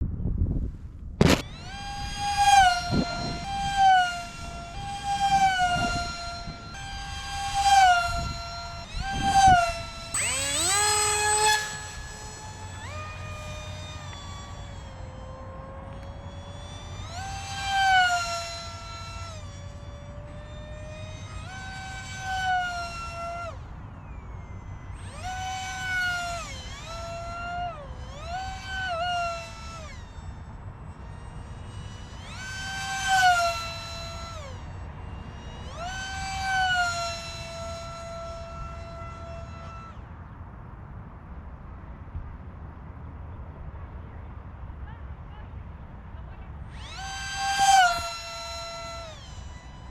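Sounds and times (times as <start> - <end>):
low wind rumble: 0.0 - 25.4
electric jet motor whining: 0.9 - 40.6, 44.9 - 49.9.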